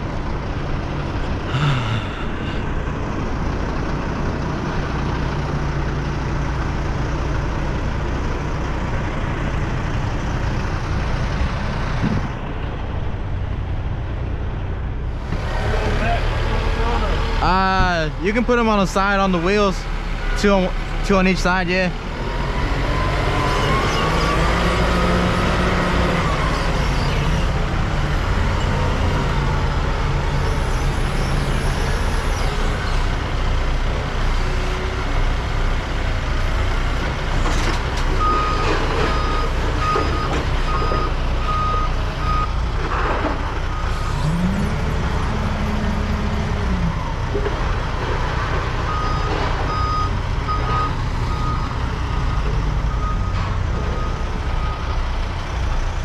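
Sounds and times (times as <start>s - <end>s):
heavy vehicle engine revving: 0.0s - 56.0s
reversing alarm beeping: 38.2s - 42.5s, 48.9s - 54.9s.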